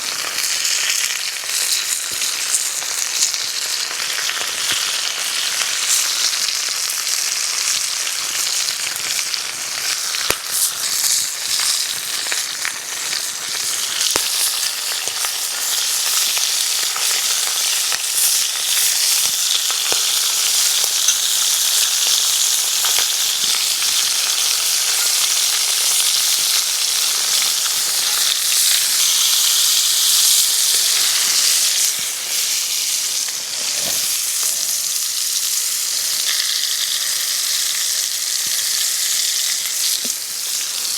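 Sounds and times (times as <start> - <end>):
food sizzling in a pan: 0.0 - 40.9.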